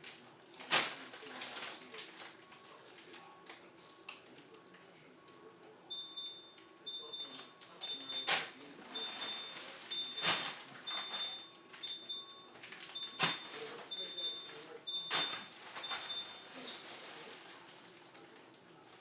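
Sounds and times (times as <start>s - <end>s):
fridge alarm beeping: 5.2s - 17.4s.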